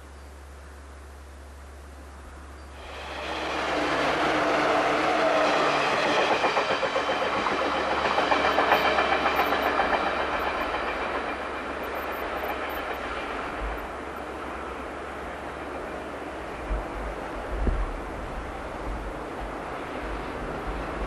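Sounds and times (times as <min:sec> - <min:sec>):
train wheels clattering: 0:02.9 - 0:14.2.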